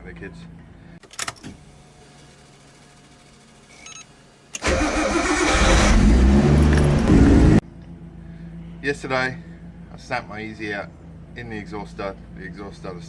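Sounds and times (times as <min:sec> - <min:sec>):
vehicle engine starting and running: 0:04.5 - 0:07.6.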